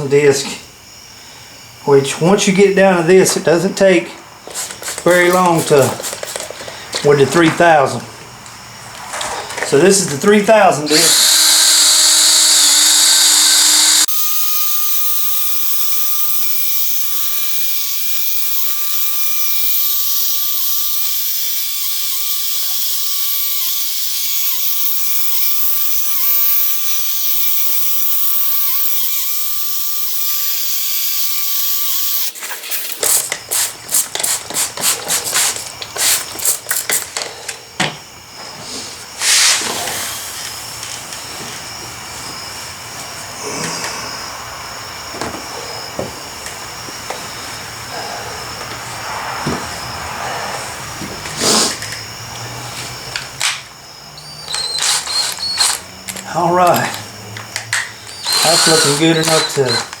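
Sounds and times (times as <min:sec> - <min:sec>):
short irregular drill bursts: 0:10.8 - 0:32.4, 0:54.2 - 0:57.0, 0:58.0 - 1:00.0
power drill sanding plastic: 0:10.9 - 0:32.4, 0:54.3 - 0:55.8, 0:58.1 - 1:00.0.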